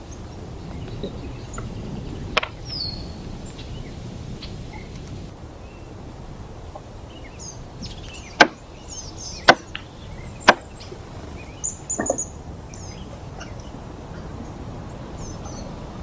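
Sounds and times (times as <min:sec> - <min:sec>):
blade chopping into wood: 0:08.4 - 0:08.6, 0:09.5 - 0:09.8, 0:10.5 - 0:10.7
soft knocks: 0:12.0 - 0:12.3.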